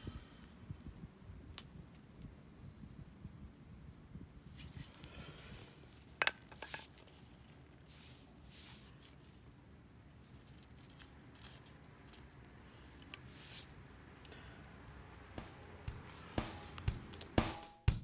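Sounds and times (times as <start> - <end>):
faint low background noise: 0.0 - 18.0
campfire crackling and popping: 0.2 - 4.4.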